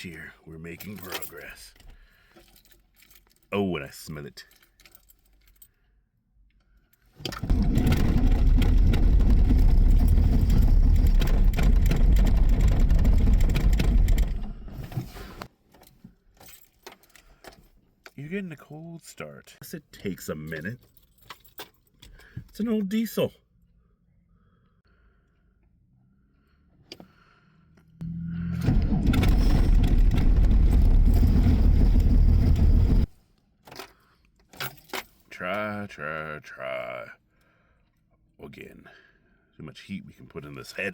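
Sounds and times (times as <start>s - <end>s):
diesel engine cranking: 7.3s - 15.5s, 28.0s - 33.1s.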